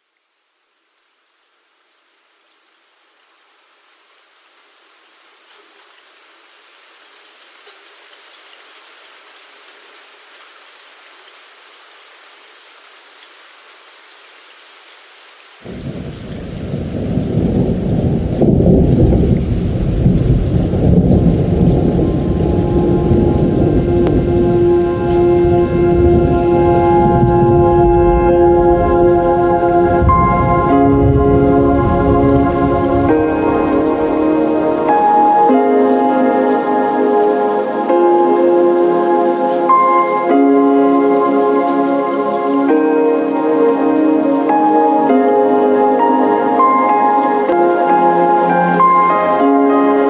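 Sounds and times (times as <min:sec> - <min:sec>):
rain hiss: 0:00.0 - 0:50.0
thunder rumbling: 0:15.6 - 0:37.1.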